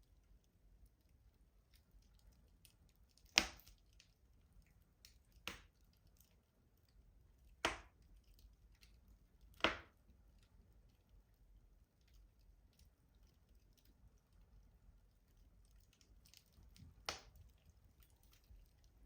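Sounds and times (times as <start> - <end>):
wood fire crackling pops: 3.2 - 4.0, 5.0 - 5.8, 7.6 - 8.1, 8.8 - 10.2, 16.0 - 17.6.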